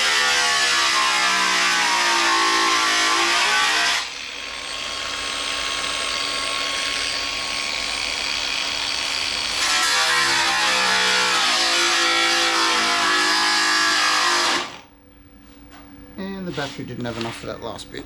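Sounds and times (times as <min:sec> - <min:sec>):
power tool cutting sheet steel: 0:00.0 - 0:14.8.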